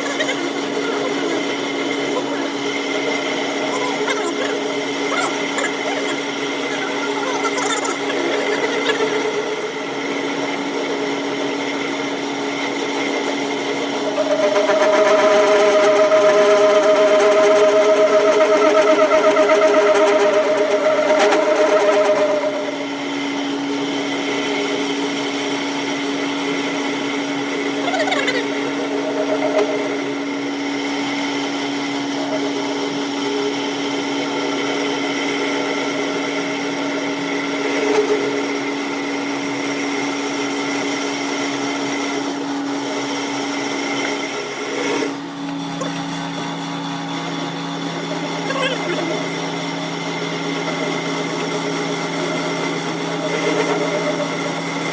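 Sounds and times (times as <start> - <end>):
machine motor humming: 0.0 - 31.2
high-pitched tone: 14.2 - 23.4, 28.5 - 30.5.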